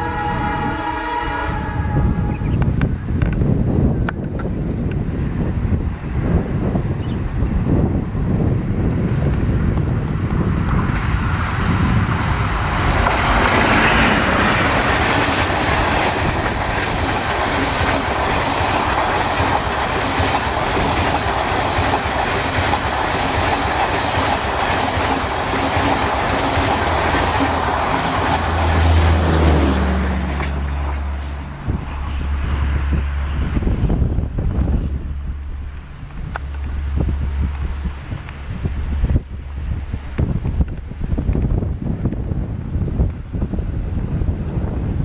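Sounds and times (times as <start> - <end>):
train wheels rumbling on track: 0.0 - 45.0
low steady drone: 25.8 - 41.6.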